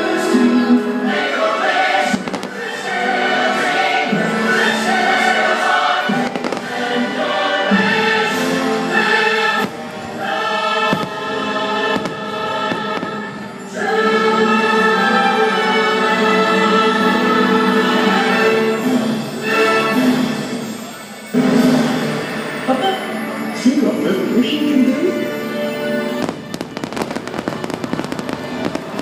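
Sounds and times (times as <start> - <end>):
choir singing held chords: 0.0 - 23.6, 25.0 - 29.0
orchestral music: 0.0 - 29.0
fireworks bursting: 1.8 - 13.9, 26.0 - 29.0.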